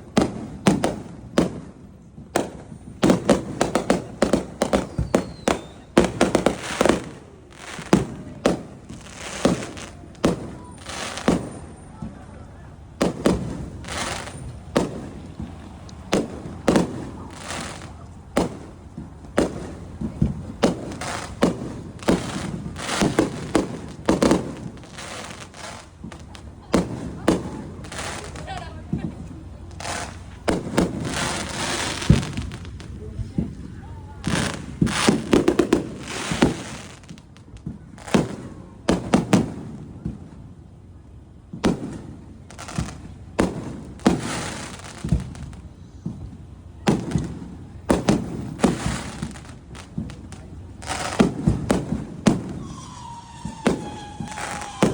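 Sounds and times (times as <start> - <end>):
firework shells bursting: 2.4 - 40.4, 41.2 - 54.9.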